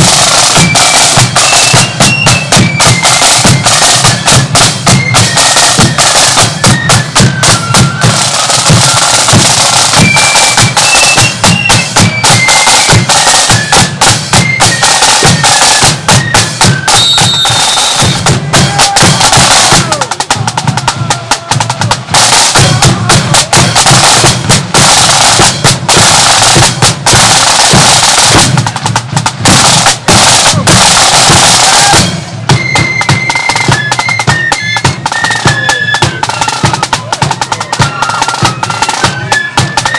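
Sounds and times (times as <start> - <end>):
flutes playing melody: 0.0 - 39.9
snare drum rolls: 0.0 - 39.9
bass drum beat: 17.0 - 31.4.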